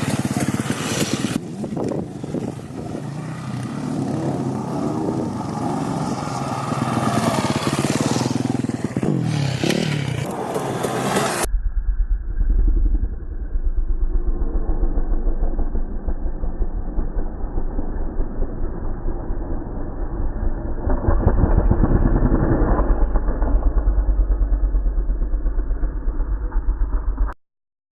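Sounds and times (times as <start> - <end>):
motorcycle engines revving: 0.0 - 11.5
muffled low engine rumble: 11.4 - 27.4.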